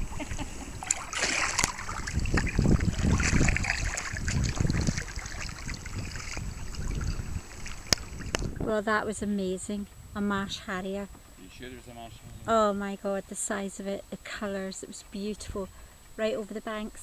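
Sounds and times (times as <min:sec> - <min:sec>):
paddles splashing water: 0:00.0 - 0:09.0
low uneven rumble: 0:00.0 - 0:17.0.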